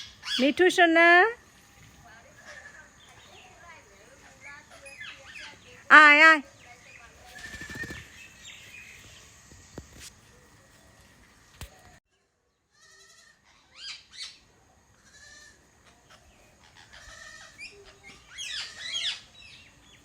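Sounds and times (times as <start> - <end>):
parrot squawking: 16.0 - 19.3.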